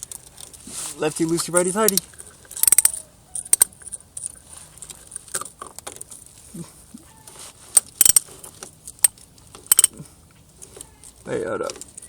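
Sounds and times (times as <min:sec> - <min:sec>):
wrench and bolt clinking: 0:00.0 - 0:00.6, 0:01.2 - 0:06.3, 0:07.8 - 0:10.0, 0:10.6 - 0:12.0.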